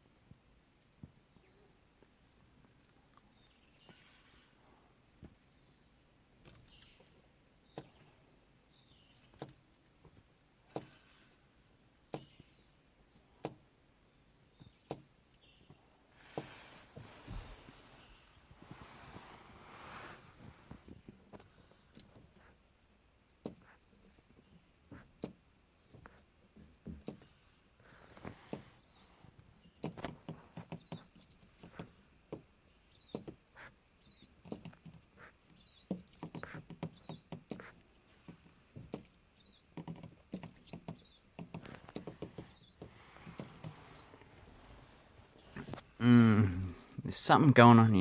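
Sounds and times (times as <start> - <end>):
birds pecking and tapping at a car: 6.4 - 15.8, 23.1 - 44.0.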